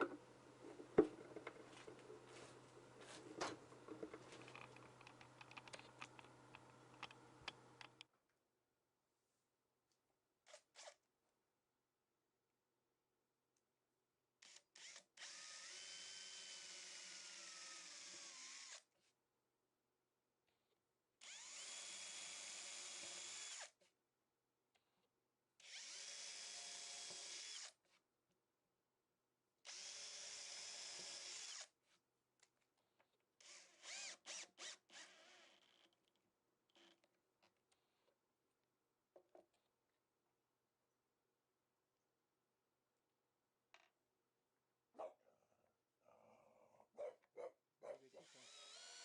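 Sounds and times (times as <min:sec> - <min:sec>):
electric drill whining: 0:14.5 - 0:18.8, 0:21.2 - 0:23.7, 0:25.6 - 0:27.8, 0:29.7 - 0:31.7, 0:33.4 - 0:35.9, 0:48.2 - 0:49.0.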